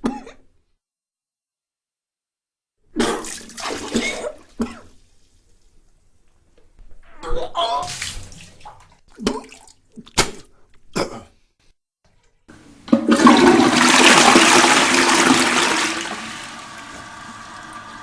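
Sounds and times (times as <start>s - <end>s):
toilet flushing: 3.1s - 4.6s, 12.5s - 18.0s
person retching: 9.2s - 11.4s.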